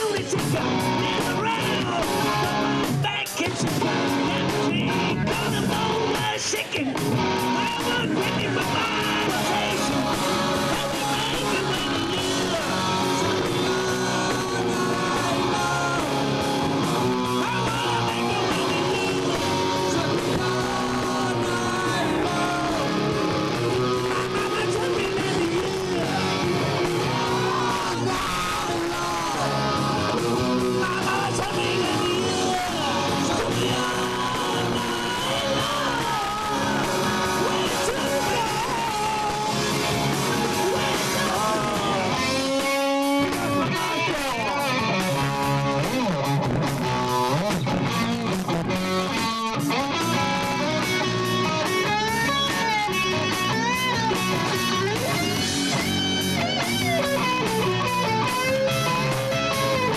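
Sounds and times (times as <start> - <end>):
distorted electric guitar: 0.0 - 59.9
drums: 0.0 - 59.9
person shouting and singing: 0.0 - 59.9.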